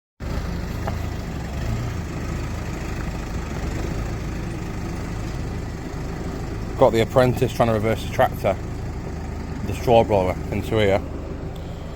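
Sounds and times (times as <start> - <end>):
tractor engine droning: 0.2 - 11.9.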